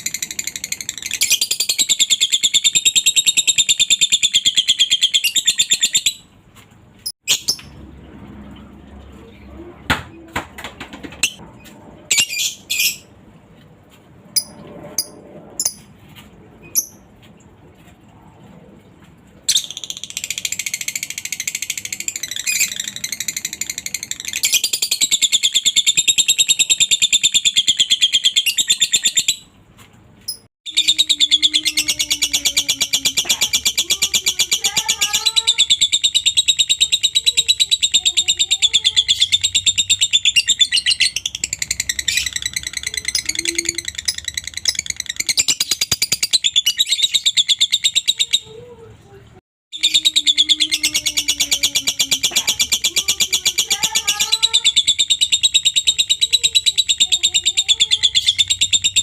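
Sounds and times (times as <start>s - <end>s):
lovebird chattering trill: 30.3s - 48.6s, 49.8s - 59.0s.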